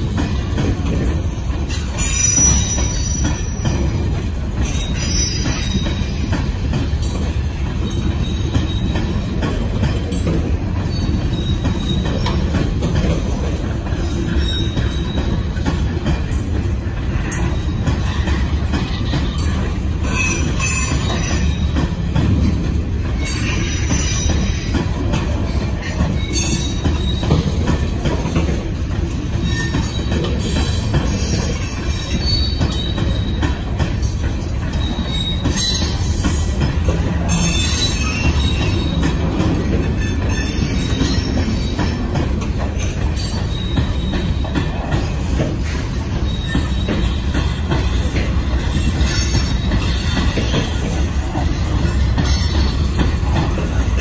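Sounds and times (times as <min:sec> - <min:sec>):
train wheels rumbling on rails: 0:00.0 - 0:54.0
high-pitched wheel squeals: 0:01.8 - 0:03.6, 0:40.0 - 0:41.7.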